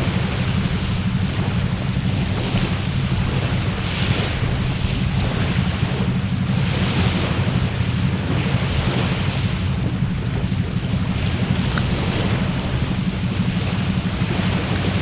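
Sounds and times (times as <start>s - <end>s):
fire flames rushing: 10.2s - 15.0s.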